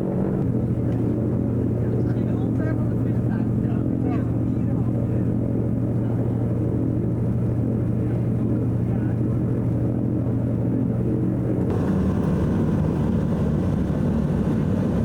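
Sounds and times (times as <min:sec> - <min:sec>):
propeller plane engines droning: 0:00.0 - 0:15.0.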